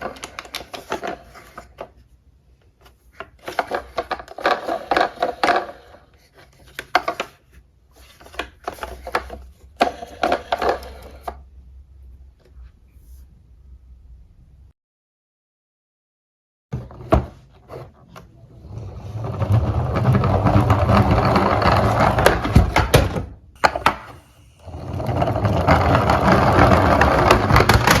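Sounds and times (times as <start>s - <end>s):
toy cars rattling down slope: 24.6s - 28.0s.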